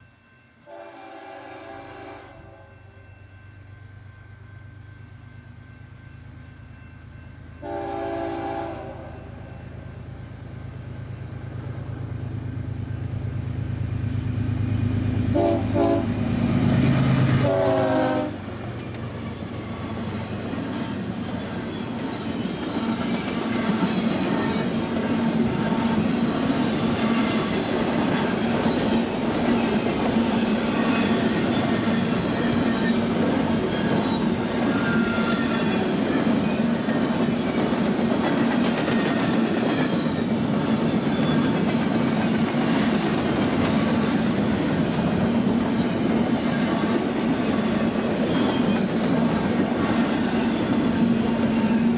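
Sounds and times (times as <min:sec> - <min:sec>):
train horn blasts: 0:00.6 - 0:03.0, 0:07.6 - 0:09.6, 0:15.3 - 0:16.6, 0:17.2 - 0:18.5
diesel locomotive engine rumble: 0:03.6 - 0:51.9
train wheel clatter: 0:15.0 - 0:51.9.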